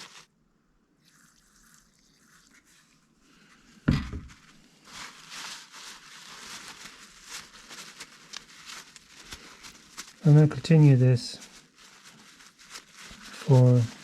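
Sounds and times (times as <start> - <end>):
knock on bench: 3.9 - 4.3.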